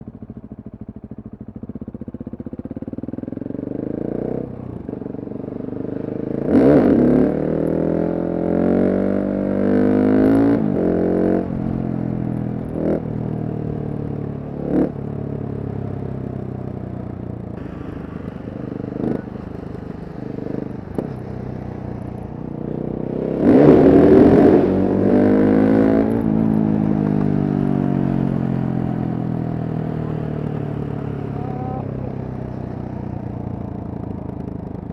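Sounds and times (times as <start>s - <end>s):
motorcycle engine accelerating: 0.0s - 34.9s
sharp cracks: 17.6s - 22.5s.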